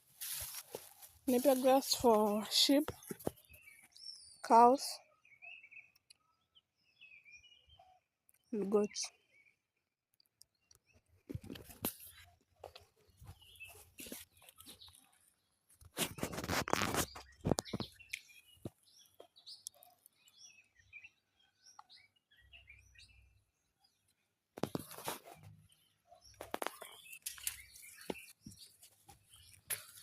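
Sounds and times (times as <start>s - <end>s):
grass or leaves rustling: 0.0s - 3.4s
faint bird chirps: 2.6s - 9.7s.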